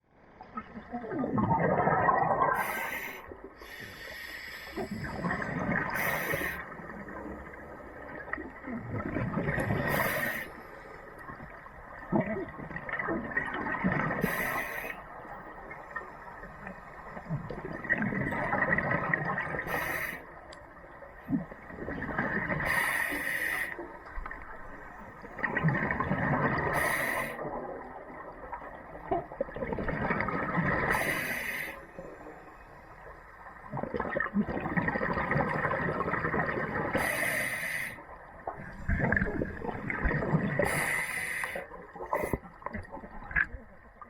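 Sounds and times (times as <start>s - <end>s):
bubbling exhalations: 1.0s - 2.8s
hissing regulator inhalations: 2.6s - 5.2s, 5.9s - 6.8s, 9.8s - 10.9s, 14.2s - 15.0s, 19.6s - 20.2s, 22.7s - 23.8s, 26.7s - 27.4s, 30.9s - 31.9s, 37.0s - 38.0s, 40.6s - 42.4s.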